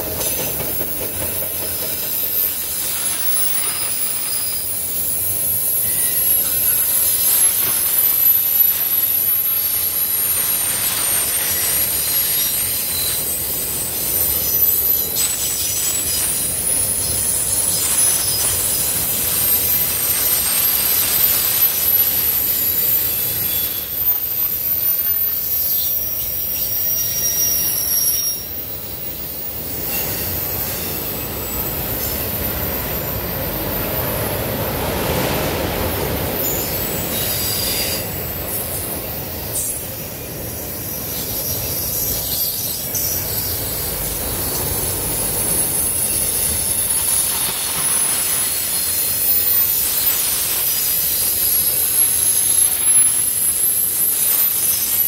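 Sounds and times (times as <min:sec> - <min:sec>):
train wheels rumbling on rails: 0:00.0 - 0:55.0
high-pitched wheel squeal: 0:00.2 - 0:34.4.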